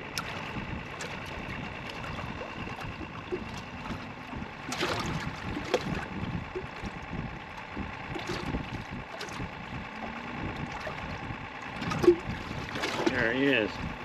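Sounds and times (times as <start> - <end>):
water lapping against boat hull: 0.0 - 14.0
wind on microphone: 0.0 - 14.0.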